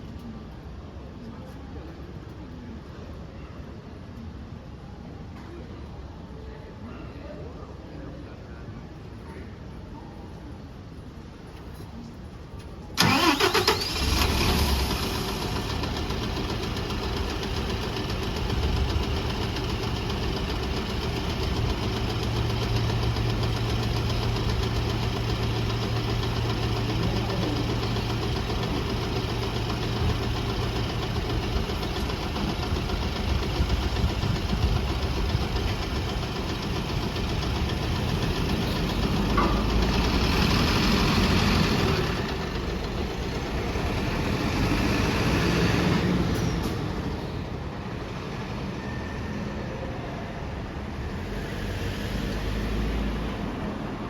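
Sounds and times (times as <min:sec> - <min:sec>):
bus engine starting and idling: 0:12.6 - 0:54.0.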